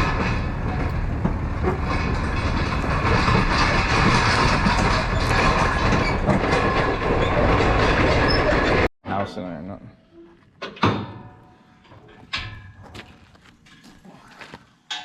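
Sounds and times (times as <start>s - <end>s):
trailer rattling and clanking: 0.0s - 8.9s, 10.6s - 14.0s
truck road noise: 0.0s - 8.9s.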